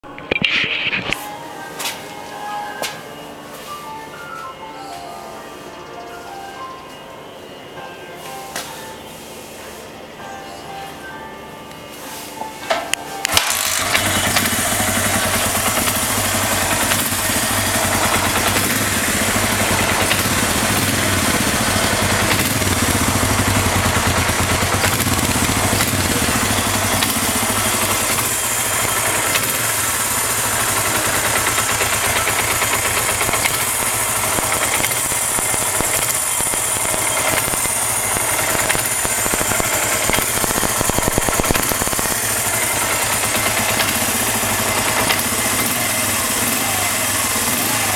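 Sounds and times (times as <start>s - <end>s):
motorcycle engine idling: 13.3s - 47.9s.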